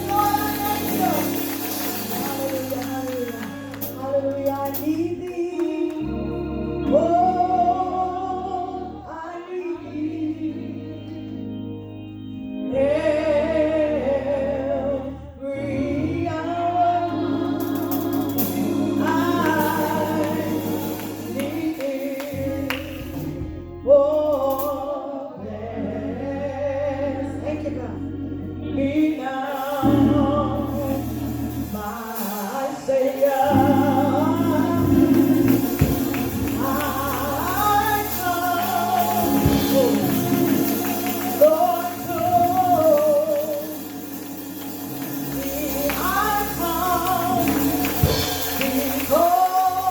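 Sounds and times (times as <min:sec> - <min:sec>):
solo singer with vibrato: 0:00.0 - 0:11.4, 0:12.6 - 0:49.9
sustained keyboard accompaniment: 0:00.0 - 0:49.9
other voices singing: 0:12.8 - 0:23.4, 0:24.5 - 0:49.9.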